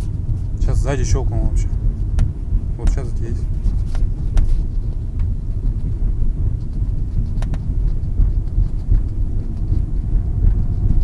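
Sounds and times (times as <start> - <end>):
road and tyre rumble: 0.0 - 11.0
sharp clicks from car body: 7.4 - 7.8.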